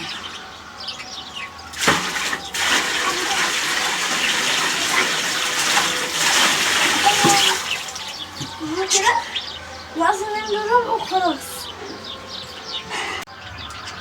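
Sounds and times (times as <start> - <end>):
water pouring into a pool: 1.7 - 8.5.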